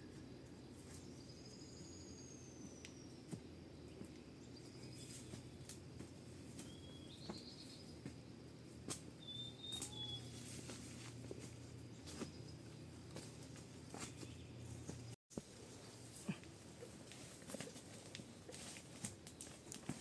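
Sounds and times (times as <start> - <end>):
faint outdoor ambience: 0.0 - 20.0
thin bird calls: 6.5 - 8.1, 9.1 - 10.6.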